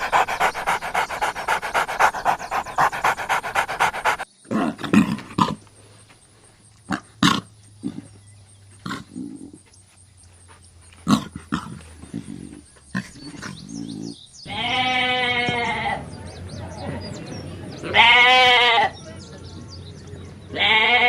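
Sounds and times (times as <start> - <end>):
dog panting: 0.0 - 4.3
low animal sounds: 0.0 - 6.0, 6.7 - 21.0.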